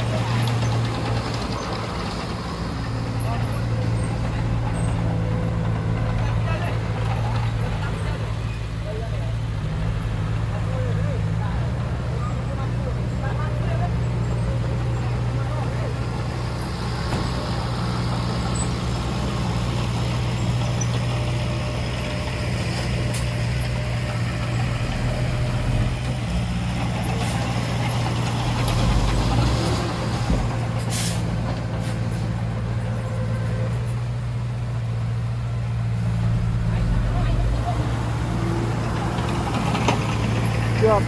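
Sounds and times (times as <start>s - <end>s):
heavy diesel engine running: 0.0s - 41.0s
short hiss: 30.9s - 32.0s.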